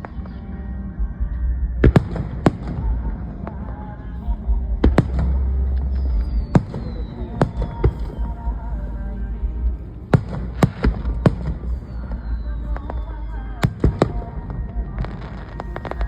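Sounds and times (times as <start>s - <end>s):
low rolling rumble: 0.0s - 16.0s.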